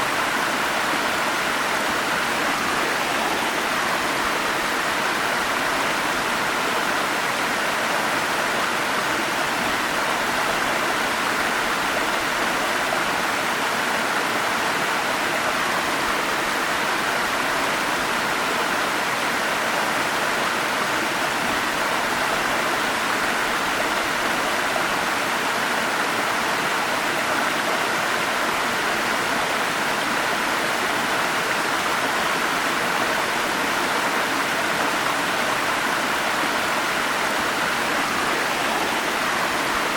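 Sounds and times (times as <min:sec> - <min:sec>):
forest stream flowing: 0:00.0 - 0:39.9.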